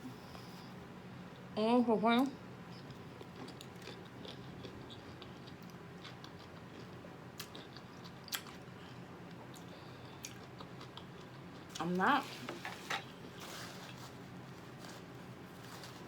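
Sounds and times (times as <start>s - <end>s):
faint steady hum: 0.0s - 16.0s
person chewing: 2.8s - 11.8s.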